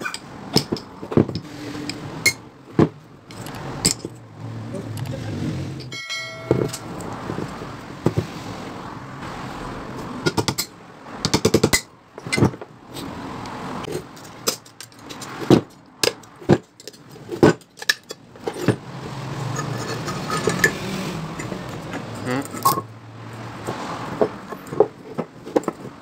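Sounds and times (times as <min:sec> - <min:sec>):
metal tools clinking on metal: 0:03.3 - 0:04.2, 0:05.8 - 0:07.2, 0:19.4 - 0:22.9.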